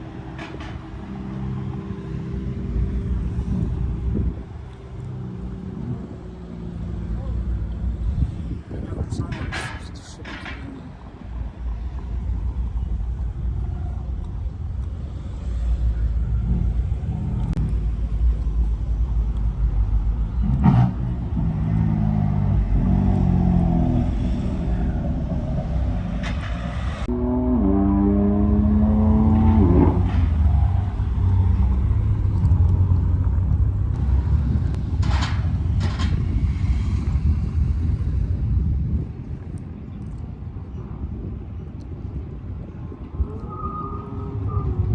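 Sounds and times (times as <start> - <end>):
car engines rumbling: 0.0 - 44.9
engine revving: 20.3 - 33.2.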